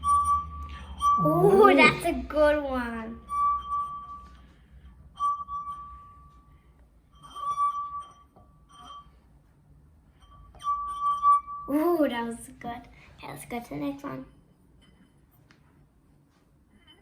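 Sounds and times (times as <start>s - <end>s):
glass rim ringing tone: 0.0s - 2.2s, 3.2s - 12.0s, 14.3s - 15.4s.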